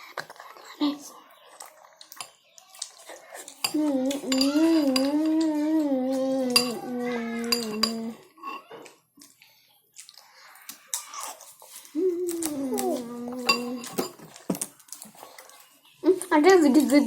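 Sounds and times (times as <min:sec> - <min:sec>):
spoons clinking against bowls: 0:02.0 - 0:09.4, 0:11.0 - 0:17.0.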